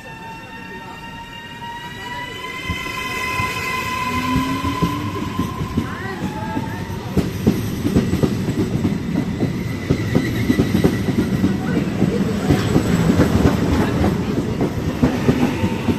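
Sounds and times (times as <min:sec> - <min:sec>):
train wheels rumbling on rails: 0:00.0 - 0:15.9
clickety-clack over rail joints: 0:04.7 - 0:15.9.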